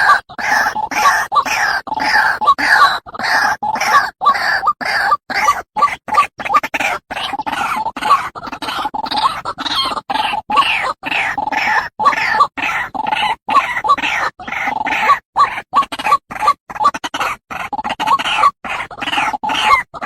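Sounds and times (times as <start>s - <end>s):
bird calling harsh repeated notes: 0.0s - 15.6s.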